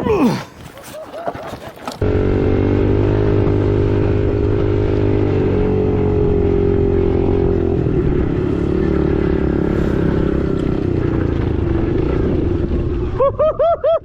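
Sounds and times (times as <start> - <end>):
dirt bike engine running: 2.0 - 13.2.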